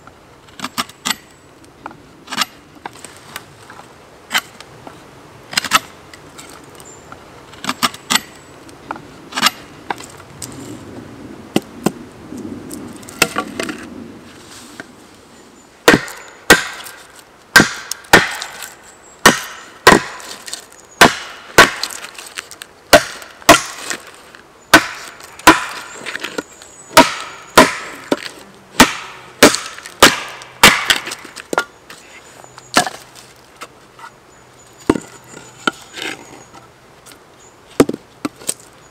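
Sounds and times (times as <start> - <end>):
wood chopping knocks: 15.9 - 17.0, 19.2 - 20.3, 27.0 - 31.7, 37.8 - 38.4.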